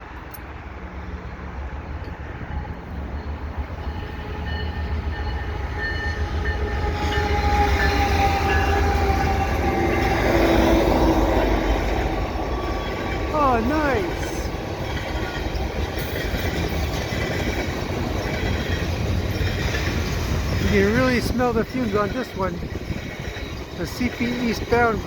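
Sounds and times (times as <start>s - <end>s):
diesel freight train rumble: 0.0s - 25.0s
wind buffeting microphone: 13.9s - 25.0s.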